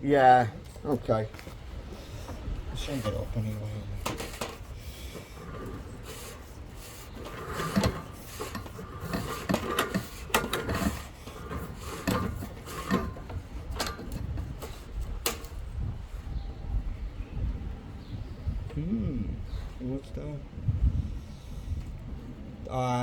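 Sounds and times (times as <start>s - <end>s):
rod rubbing and scraping in pipe: 2.0s - 15.5s
sharp clicks and knocks: 4.0s - 6.5s, 7.1s - 15.6s.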